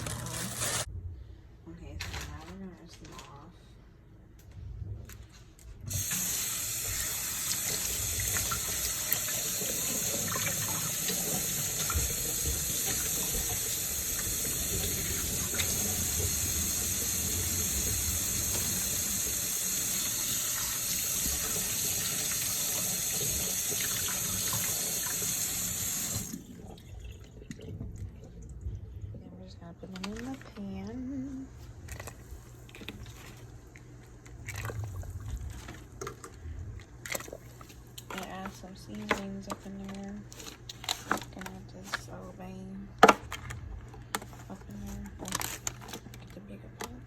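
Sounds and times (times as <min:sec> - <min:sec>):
kitchen tap running: 0:05.9 - 0:28.4.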